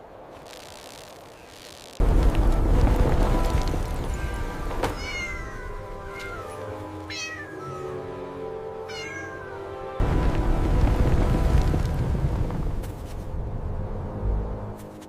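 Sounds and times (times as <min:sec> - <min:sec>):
low rumble of storm: 0:02.0 - 0:06.3, 0:10.0 - 0:14.6
soft background music: 0:02.1 - 0:15.0
kitten meowing: 0:04.2 - 0:08.0, 0:08.9 - 0:09.6.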